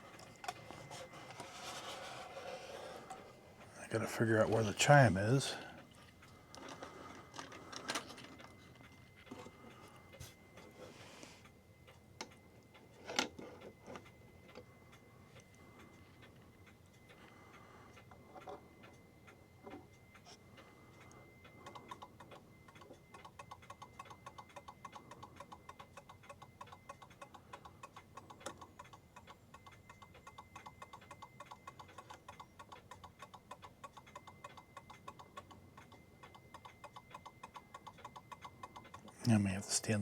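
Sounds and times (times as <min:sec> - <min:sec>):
clock ticking: 0:13.7 - 0:40.0.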